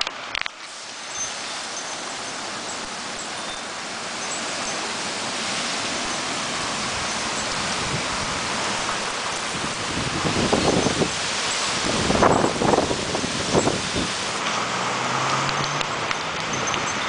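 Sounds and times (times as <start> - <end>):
heavy rain: 0.0 - 17.0
wind: 0.0 - 17.0
wind gusts buffeting microphone: 1.6 - 14.4.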